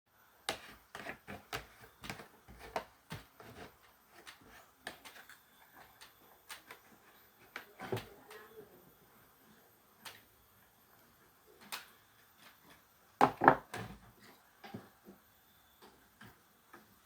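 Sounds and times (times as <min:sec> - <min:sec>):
wooden pieces knocking: 0:13.2 - 0:13.8.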